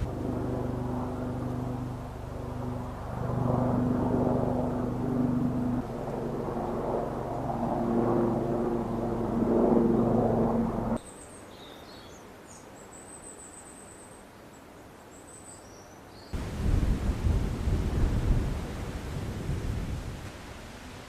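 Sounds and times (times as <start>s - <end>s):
steady engine drone: 0.0s - 11.0s.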